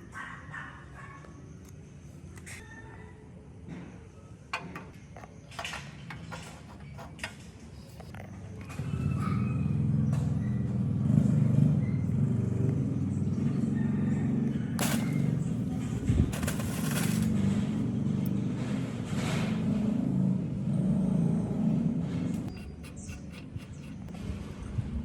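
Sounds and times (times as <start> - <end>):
motor vehicle rumble: 6.0 - 25.0.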